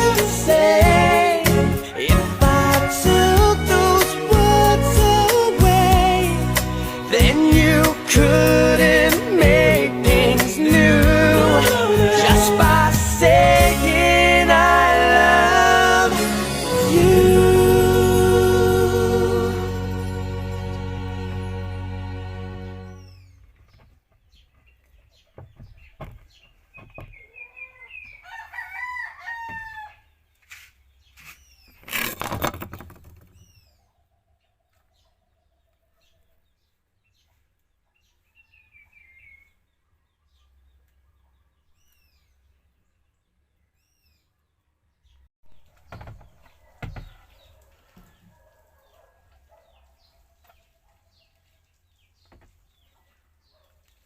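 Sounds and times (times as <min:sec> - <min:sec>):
small birds chirping: 0:22.8 - 0:28.4, 0:30.0 - 0:31.9, 0:33.2 - 0:54.0
rooster crowing: 0:27.8 - 0:30.1.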